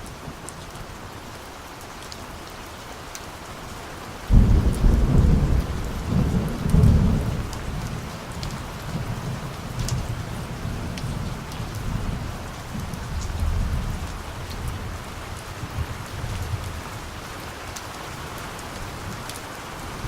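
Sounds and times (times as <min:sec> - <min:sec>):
steady rain: 0:00.0 - 0:20.0
thunder rumbling: 0:04.3 - 0:08.2.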